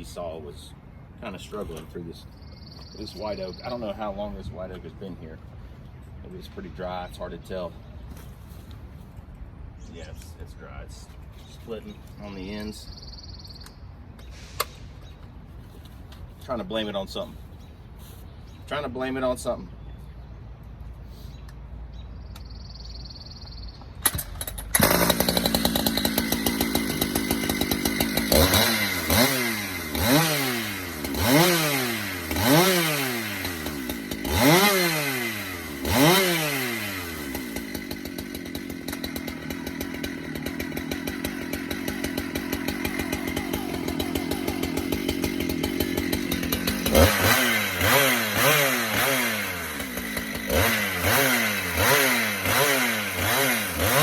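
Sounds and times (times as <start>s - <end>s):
chainsaw engine revving: 24.0s - 54.0s.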